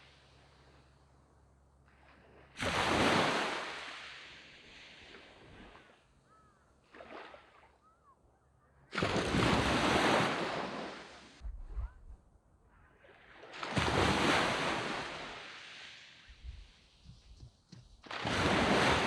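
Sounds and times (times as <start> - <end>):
sea waves breaking on sand: 1.9 - 6.1, 6.8 - 7.7, 8.9 - 11.4, 13.0 - 19.0.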